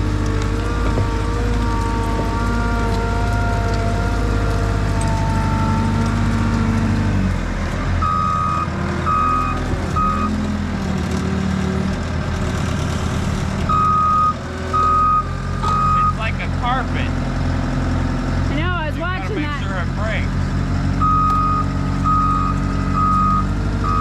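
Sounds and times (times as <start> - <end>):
skid steer engine running: 0.0 - 24.0
reversing alarm beeping: 8.0 - 10.4, 13.7 - 16.3, 21.0 - 24.0.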